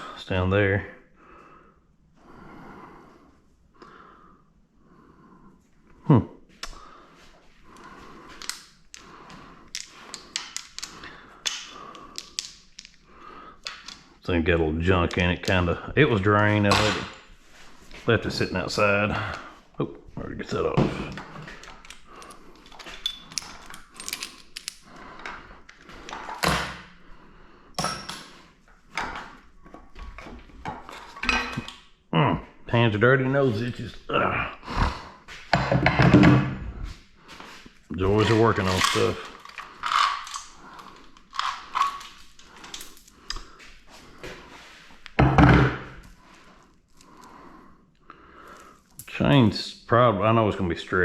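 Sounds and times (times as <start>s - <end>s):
metal tools clinking: 21.2s - 25.3s, 27.8s - 28.3s, 38.1s - 43.1s.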